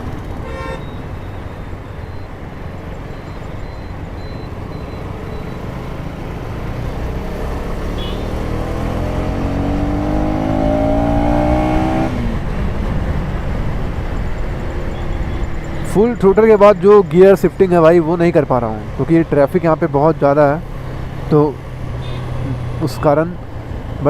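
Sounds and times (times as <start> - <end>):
wind and road noise: 0.0 - 24.0
motorcycle engine accelerating: 4.6 - 12.9.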